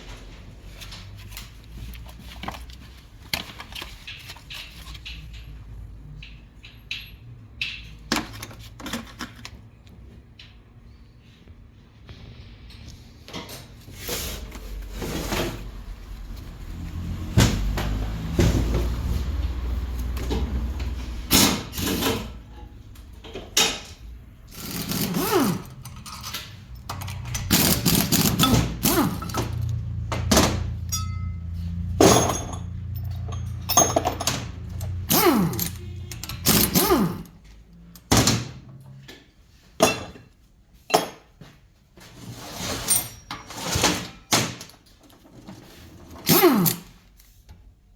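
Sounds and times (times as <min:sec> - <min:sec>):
metal tools knocking and clanking: 0:03.8 - 0:09.4, 0:24.6 - 0:37.2.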